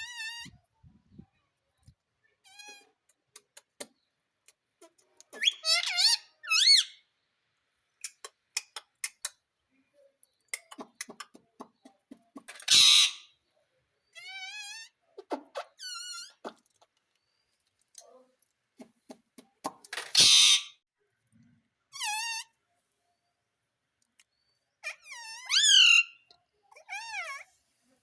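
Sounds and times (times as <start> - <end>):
parrot squeaky warbling calls: 0.0 - 0.6, 5.4 - 7.0, 12.6 - 13.4, 14.1 - 16.6, 20.0 - 20.8, 21.9 - 22.6, 24.8 - 27.6.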